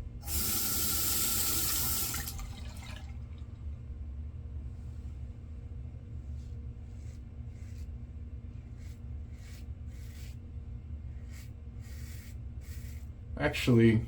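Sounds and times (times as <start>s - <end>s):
soft rubbing strokes: 4.6s - 13.3s.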